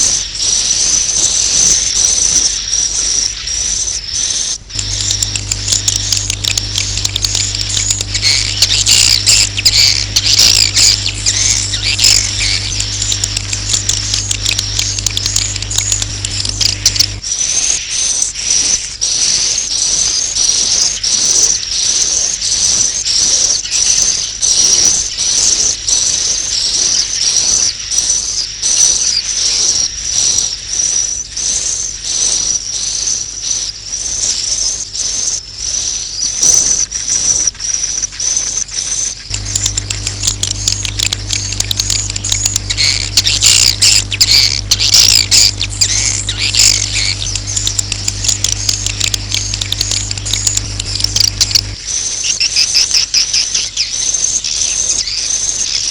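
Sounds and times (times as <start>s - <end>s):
bird chirping: 0.0s - 55.9s
swiftlet calls pulsing twitter: 0.0s - 55.9s
low steady hum: 4.6s - 21.0s, 39.2s - 52.3s.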